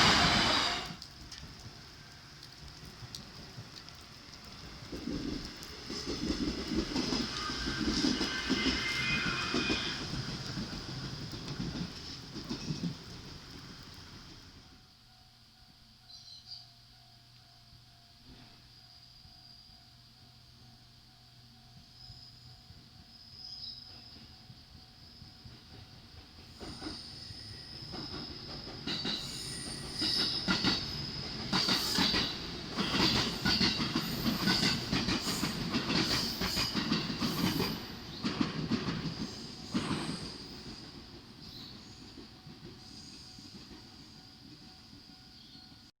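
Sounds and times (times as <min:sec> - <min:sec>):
high wheel squeal: 0:00.0 - 0:01.0, 0:07.3 - 0:10.4
train wheels clattering over rail joints: 0:25.5 - 0:44.0.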